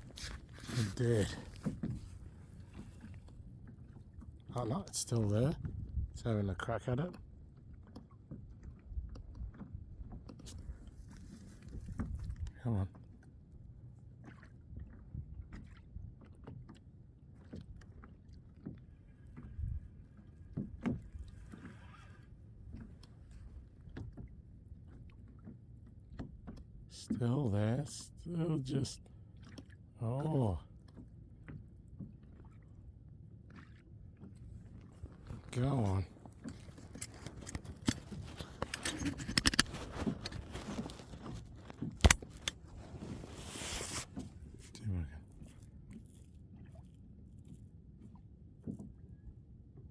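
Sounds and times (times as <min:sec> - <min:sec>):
water lapping against kayak hull: 0:00.0 - 0:49.9
soft knocks on hull: 0:01.4 - 0:04.2, 0:20.5 - 0:21.7.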